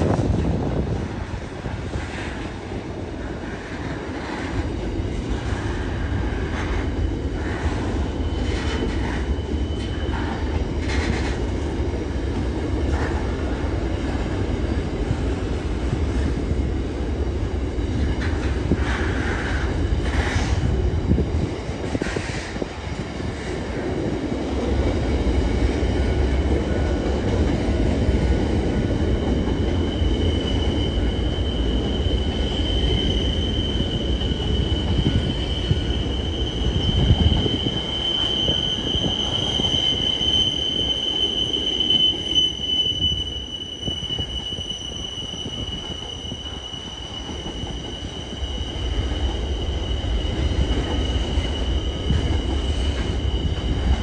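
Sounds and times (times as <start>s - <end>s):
freight train wheels rumbling: 0.0s - 54.0s
high-pitched wheel squeal: 29.7s - 54.0s.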